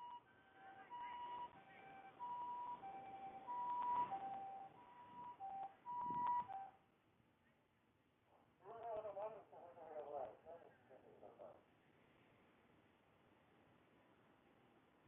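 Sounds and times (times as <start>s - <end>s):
two-tone ambulance siren: 0.0s - 6.8s.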